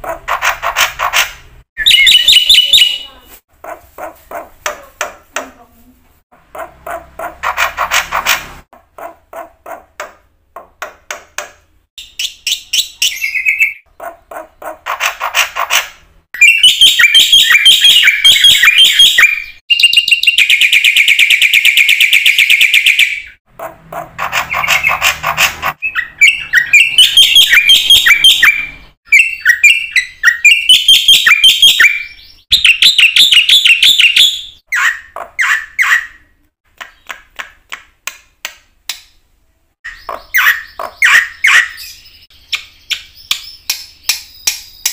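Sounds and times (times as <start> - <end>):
bird singing rapid notes and trills: 1.8 - 3.2, 12.0 - 15.7, 16.4 - 36.3, 39.8 - 44.9.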